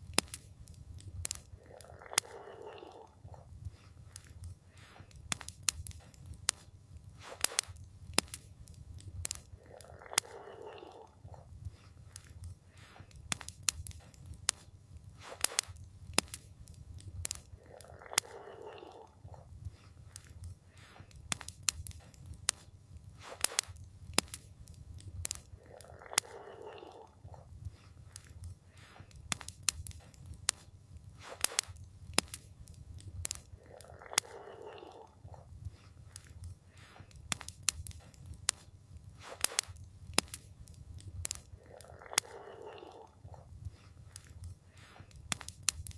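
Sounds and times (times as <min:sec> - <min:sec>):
campfire crackling: 0:00.0 - 0:45.9.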